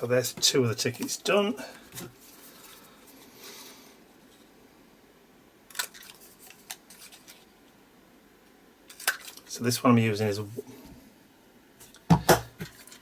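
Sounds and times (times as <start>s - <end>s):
paper rustling: 5.8s - 7.5s, 12.6s - 13.0s.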